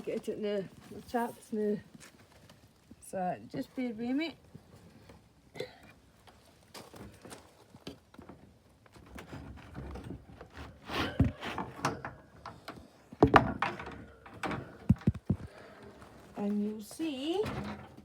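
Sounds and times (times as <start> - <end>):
wooden door knocking and rattling: 13.2 - 15.2.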